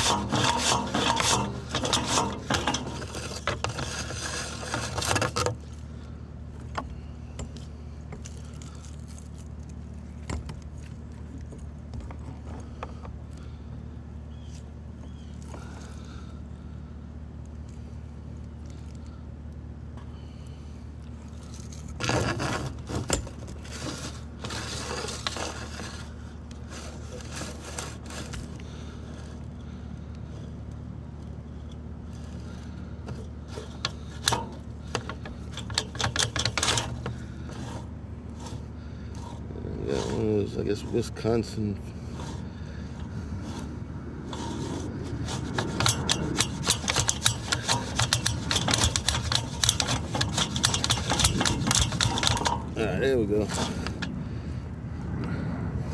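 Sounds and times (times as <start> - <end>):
cable scraping in pipe: 0.0 - 5.8, 21.3 - 28.6, 32.1 - 54.1
steady low hum: 0.0 - 55.9
low rumble: 53.5 - 55.9.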